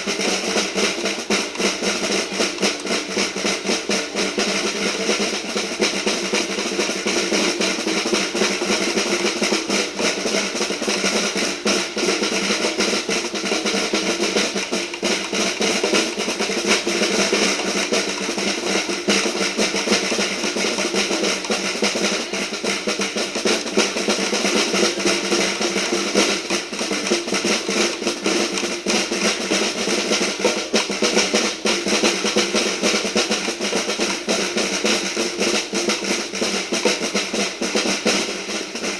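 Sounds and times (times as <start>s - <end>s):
marching band melody instruments: 0.0s - 38.9s
snare drums rolling: 0.0s - 38.9s.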